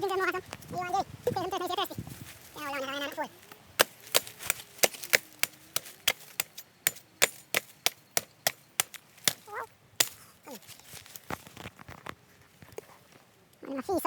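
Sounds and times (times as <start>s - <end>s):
blade chopping coconut: 3.8s - 10.2s.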